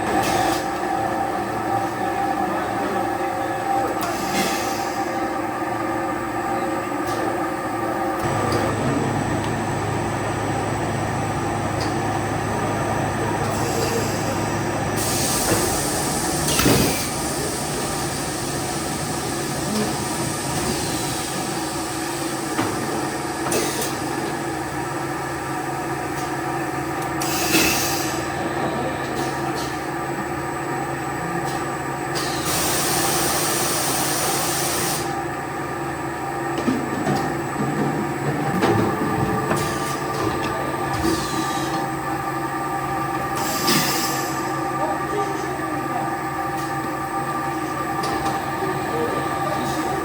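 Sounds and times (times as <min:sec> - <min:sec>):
factory machinery humming: 0:00.0 - 0:50.0
deeper machine hum: 0:05.0 - 0:27.2.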